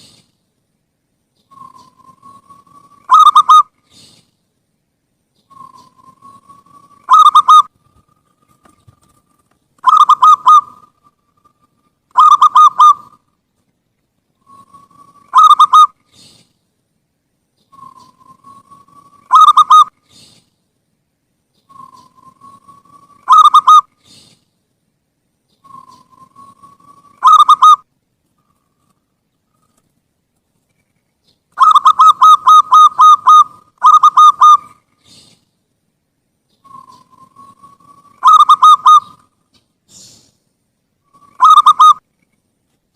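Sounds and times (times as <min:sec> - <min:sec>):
dove cooing: 0:01.5 - 0:03.7, 0:05.5 - 0:09.2, 0:09.8 - 0:13.2, 0:14.4 - 0:16.0, 0:17.7 - 0:20.2, 0:21.7 - 0:24.2, 0:25.6 - 0:27.8, 0:31.6 - 0:35.3, 0:36.6 - 0:39.2, 0:41.1 - 0:42.0.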